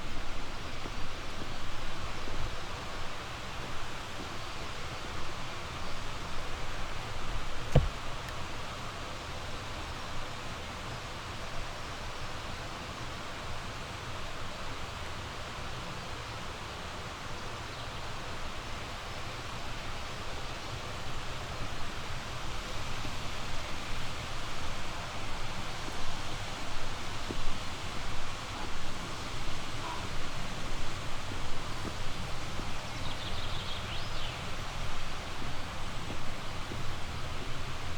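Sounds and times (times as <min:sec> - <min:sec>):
mountain stream rushing: 0:18.5 - 0:37.9.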